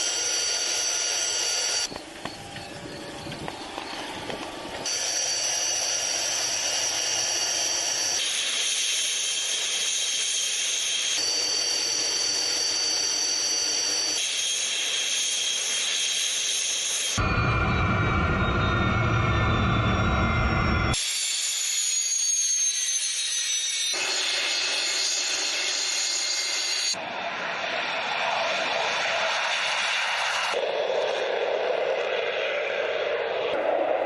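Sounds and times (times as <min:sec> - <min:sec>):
jet engines rushing and whining: 0:00.0 - 0:34.0.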